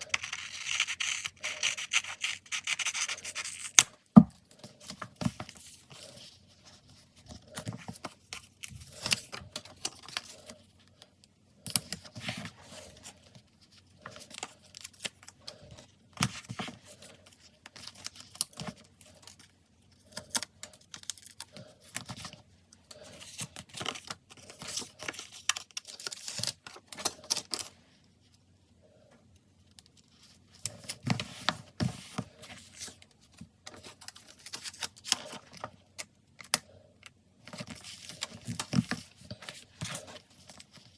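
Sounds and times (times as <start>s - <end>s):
paper stickers peeling and crinkling: 0.0s - 3.9s.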